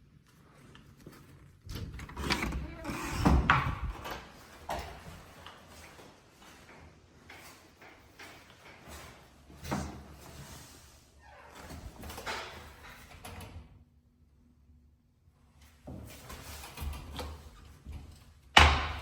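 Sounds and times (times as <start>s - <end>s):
door knocks and bumps: 1.7s - 4.2s.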